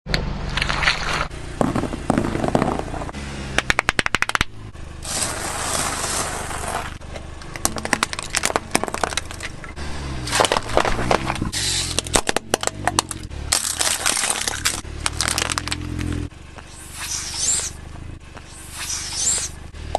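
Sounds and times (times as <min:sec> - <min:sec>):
low bass tones: 0:00.1 - 0:19.9
sharp cracks and crackles: 0:03.6 - 0:09.6, 0:10.3 - 0:19.6
hiss: 0:05.0 - 0:06.9, 0:16.7 - 0:17.8, 0:18.5 - 0:19.6.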